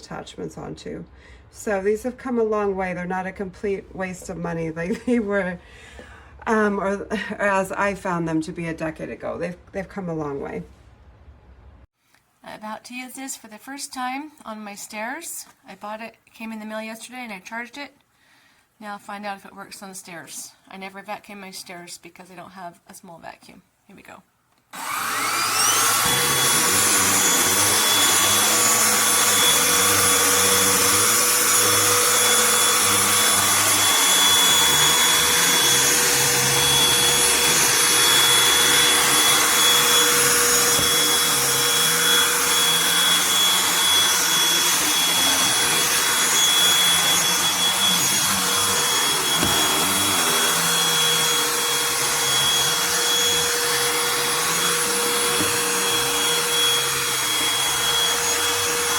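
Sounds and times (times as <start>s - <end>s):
handheld vacuum running: 24.8s - 58.9s.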